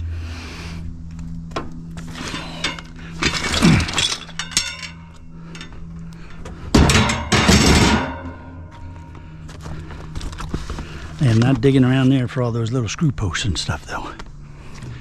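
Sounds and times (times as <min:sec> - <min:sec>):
steady low hum: 0:00.0 - 0:15.0
scrap metal clanking and rattling: 0:02.0 - 0:05.8, 0:06.7 - 0:09.0.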